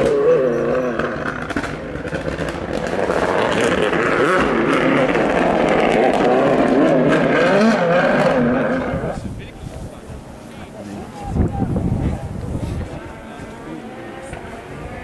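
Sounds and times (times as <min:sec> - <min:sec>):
rally car engine revving: 0:00.0 - 0:09.3, 0:12.0 - 0:15.0.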